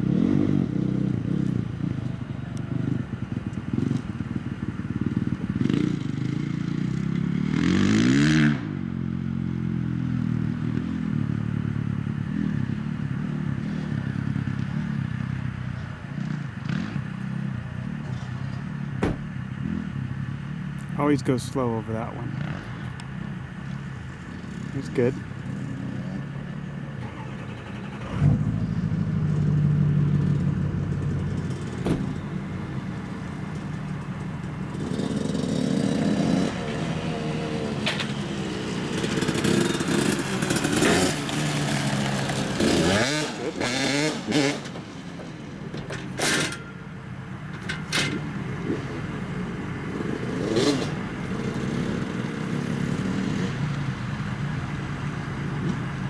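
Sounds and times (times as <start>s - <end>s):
dirt bike engines revving: 0.0s - 56.0s
short sharp knocks: 19.0s - 19.4s.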